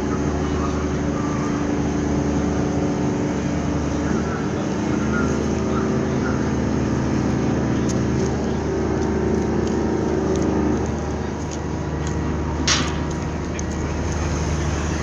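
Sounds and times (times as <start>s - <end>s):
boat engine droning: 0.0s - 15.0s
higher hum: 11.6s - 15.0s.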